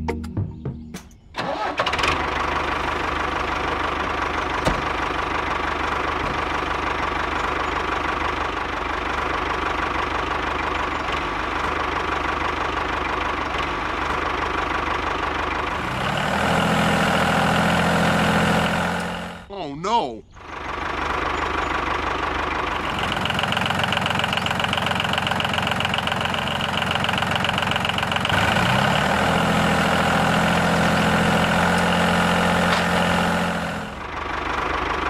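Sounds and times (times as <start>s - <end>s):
diesel engine chugging: 0.1s - 35.0s.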